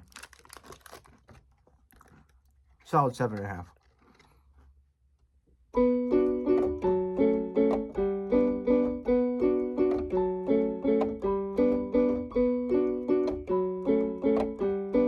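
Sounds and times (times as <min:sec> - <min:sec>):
piano keyboard melody: 0:05.7 - 0:15.0.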